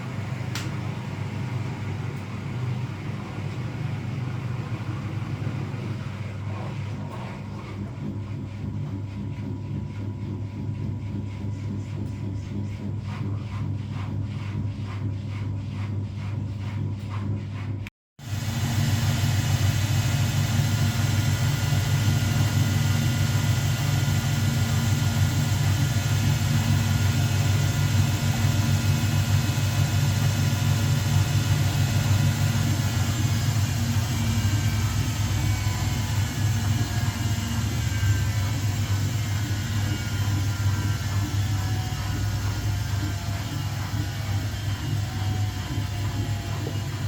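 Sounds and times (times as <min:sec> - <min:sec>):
washing machine spinning: 0:00.0 - 0:47.0.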